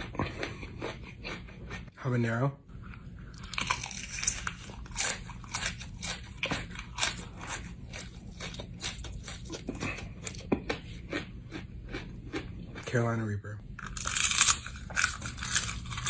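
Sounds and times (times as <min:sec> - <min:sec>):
crunching chewing of pepper: 0:00.0 - 0:01.9, 0:02.8 - 0:12.8, 0:13.8 - 0:16.0.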